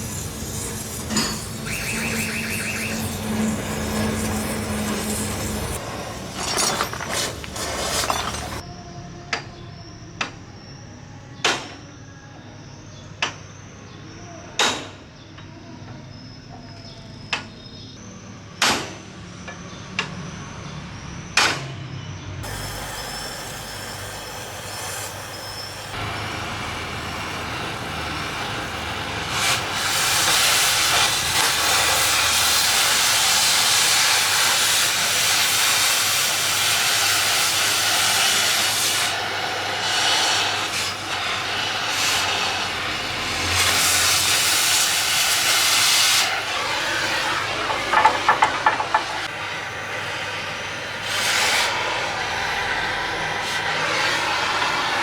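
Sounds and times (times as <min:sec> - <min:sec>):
cutting torch hissing: 0:00.0 - 0:08.6, 0:22.4 - 0:55.0.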